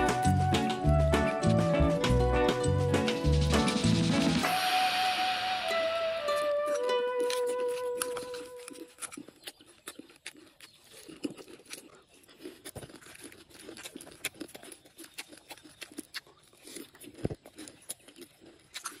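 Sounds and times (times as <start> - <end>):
person chewing crunchy food: 6.2 - 19.0.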